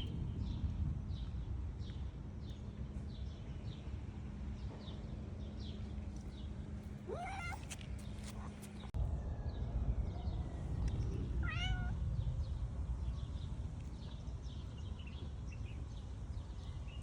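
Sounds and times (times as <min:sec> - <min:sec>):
cat meowing: 0:07.1 - 0:07.7, 0:11.4 - 0:12.0.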